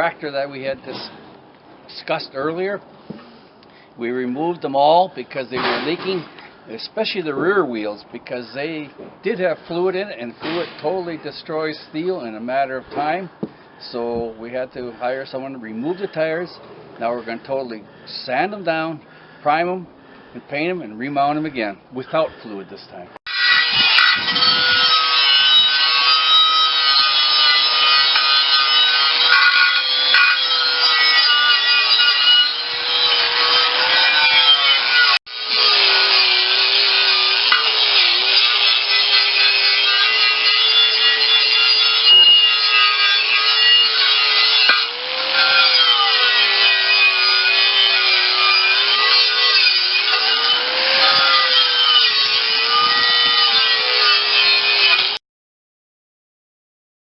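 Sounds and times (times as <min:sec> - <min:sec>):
abrasive rasping on steel: 0:23.3 - 0:55.2
power sander whine: 0:23.3 - 0:55.2.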